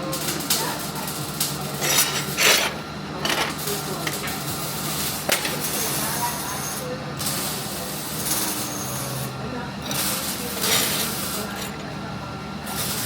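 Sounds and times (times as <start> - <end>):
metal scraping: 1.8 - 3.6
steel pieces clinking on metal: 1.8 - 4.2.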